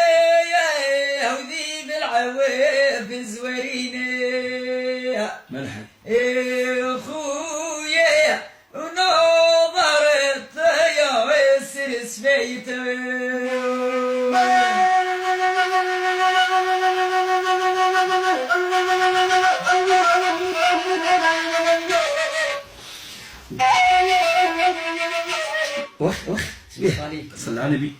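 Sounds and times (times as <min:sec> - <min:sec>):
wind instrument melody: 0:13.3 - 0:26.6.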